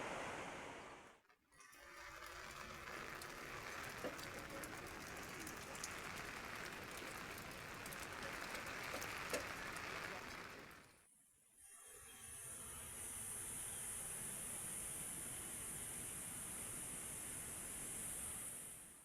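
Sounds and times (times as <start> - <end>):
raindrops ticking: 2.0 - 10.9
heavy rain hissing: 2.4 - 10.9.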